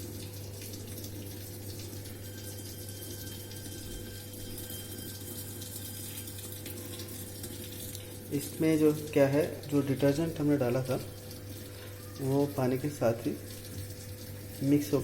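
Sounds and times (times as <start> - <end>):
water rushing into washing machine: 0.0 - 15.0.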